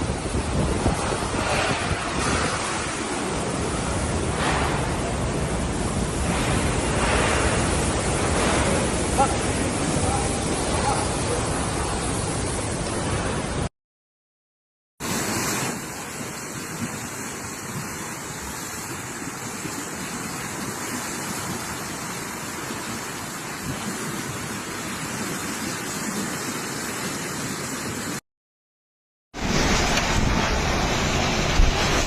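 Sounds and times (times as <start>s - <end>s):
rain: 0.0s - 13.7s, 15.0s - 28.2s, 29.4s - 32.0s
typhoon wind: 0.0s - 13.7s, 29.4s - 32.0s.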